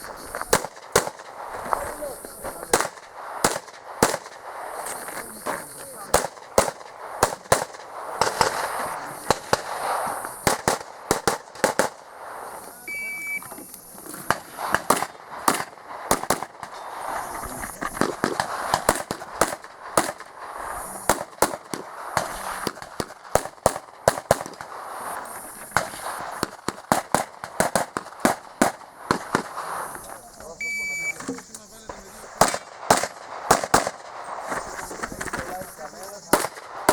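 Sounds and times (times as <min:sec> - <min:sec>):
shot timer beep: 0:12.9 - 0:13.5, 0:30.6 - 0:31.2.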